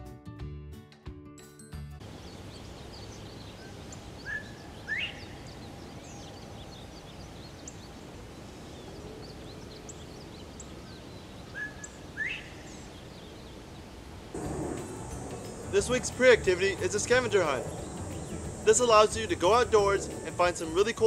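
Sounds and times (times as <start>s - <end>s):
outdoor background hiss: 2.0s - 21.0s
bird whistling call: 2.9s - 7.8s, 10.8s - 12.9s, 14.4s - 20.7s.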